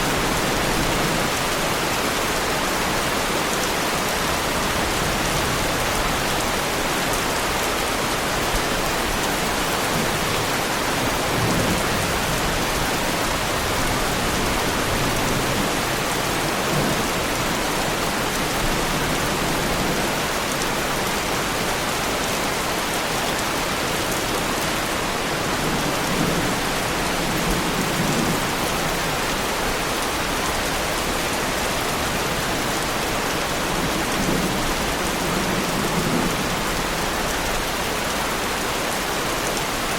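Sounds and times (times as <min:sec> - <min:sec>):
heavy rain on a car: 0:00.0 - 0:39.9.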